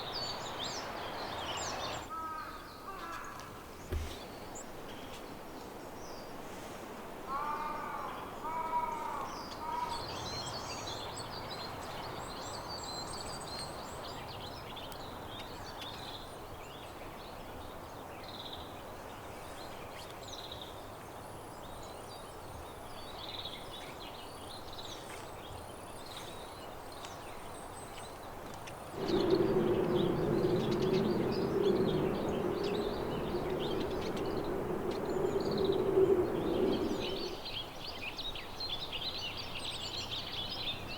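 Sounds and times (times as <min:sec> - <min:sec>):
small songbirds chirping: 0:00.0 - 0:03.2, 0:21.4 - 0:40.9
crow cawing: 0:07.3 - 0:09.9
low droning hum: 0:29.0 - 0:37.4.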